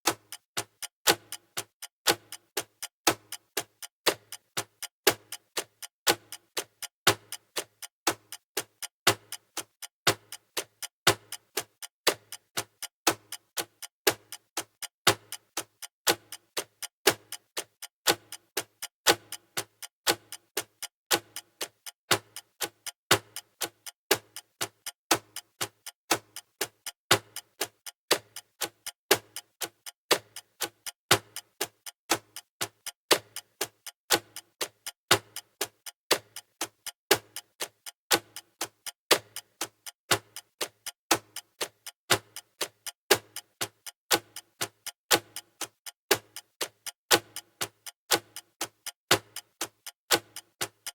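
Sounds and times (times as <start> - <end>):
countdown timer ticking: 0.1 - 50.9.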